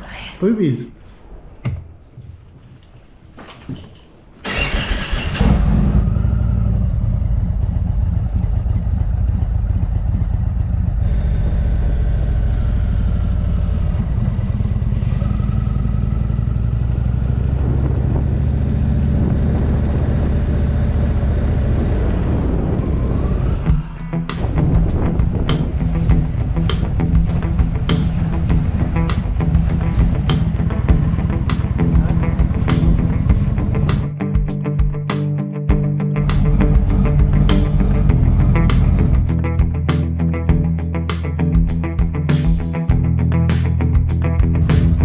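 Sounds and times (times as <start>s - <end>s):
motorcycle engine starting and running: 4.4s - 34.6s, 35.7s - 45.0s.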